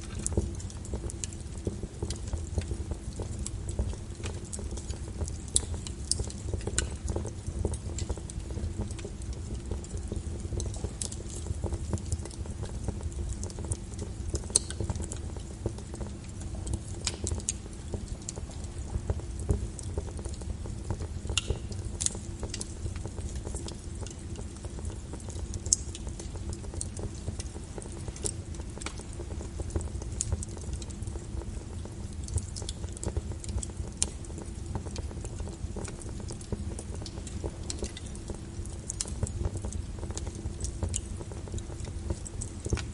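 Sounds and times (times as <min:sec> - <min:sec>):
wood fire crackling: 0:00.0 - 0:42.9
sharp pops of fire: 0:16.7 - 0:24.1.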